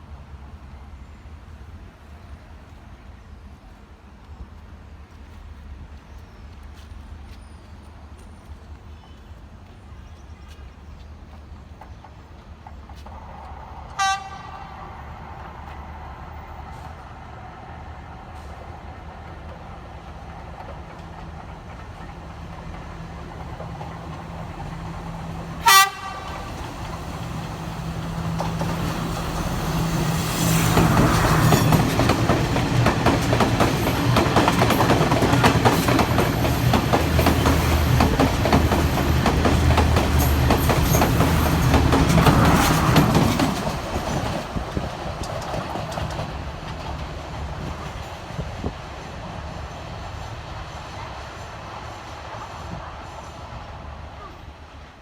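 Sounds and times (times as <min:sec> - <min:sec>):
train engine rumble: 0:00.0 - 0:55.0
train wheels clattering on rail: 0:09.6 - 0:14.5, 0:16.6 - 0:53.6
train horn blasts: 0:13.9 - 0:15.0, 0:25.6 - 0:26.8.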